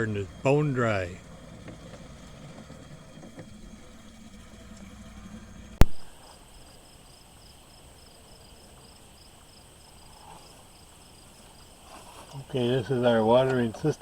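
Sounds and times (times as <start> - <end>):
low engine hum: 0.0 - 6.2
steady high whine: 0.0 - 7.1
insects chirping trill: 0.0 - 14.0
sharp click: 5.8 - 6.0.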